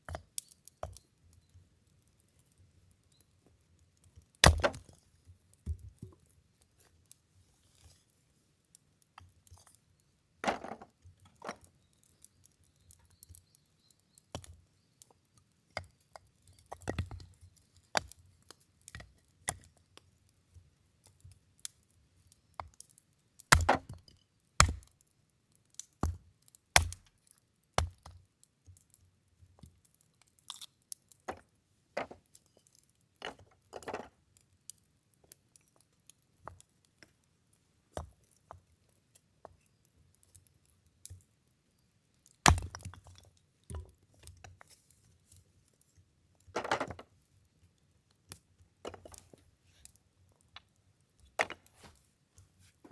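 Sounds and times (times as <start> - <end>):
axe chopping wood: 4.4 - 4.9, 23.5 - 24.0, 24.6 - 24.9, 26.8 - 27.1, 42.5 - 42.8.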